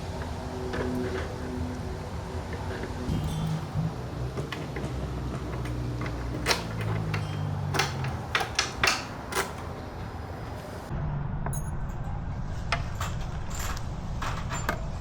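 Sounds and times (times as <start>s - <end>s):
plastic panels clicking and snapping: 2.5s - 10.9s.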